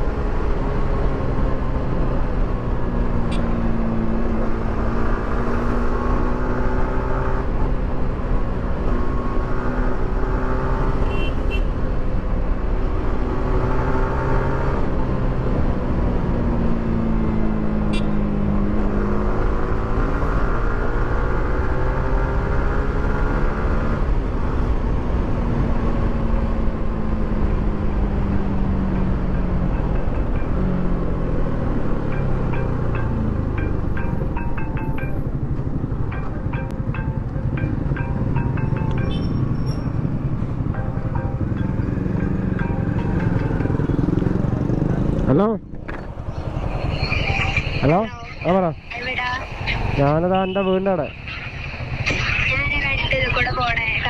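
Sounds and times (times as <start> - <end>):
motorcycle engine revving: 16.7 - 52.6.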